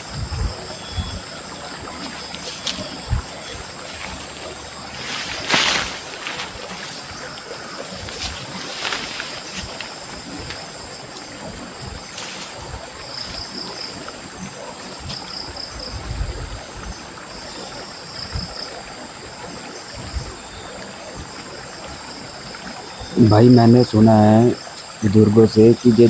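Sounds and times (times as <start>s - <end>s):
soft low thumps and clicks: 0.0s - 1.4s
insects trilling: 0.0s - 26.0s
small stream rushing: 0.0s - 26.0s.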